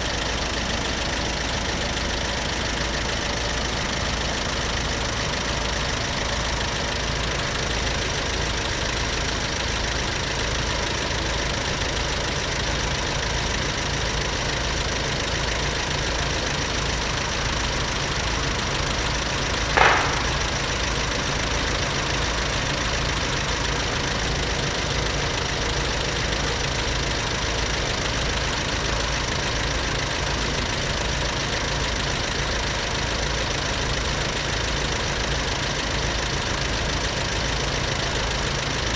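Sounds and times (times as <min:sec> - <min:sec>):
vehicle engine idling: 0:00.0 - 0:38.9
brief sharp sound: 0:19.8 - 0:21.0.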